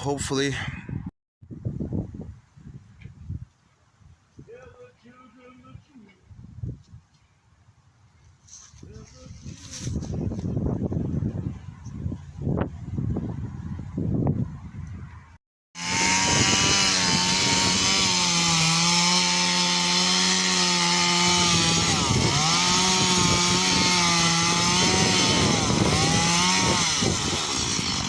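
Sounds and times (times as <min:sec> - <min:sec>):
chainsaw cutting wood: 0:15.8 - 0:28.0.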